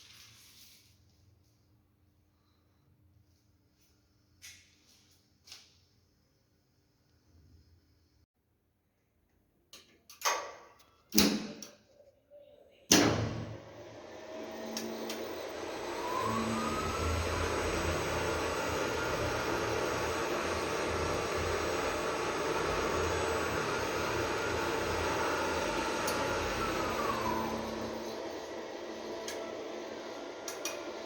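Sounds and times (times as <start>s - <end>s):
elevator motor whine: 13.5s - 31.0s
elevator rushing hum: 13.7s - 31.0s.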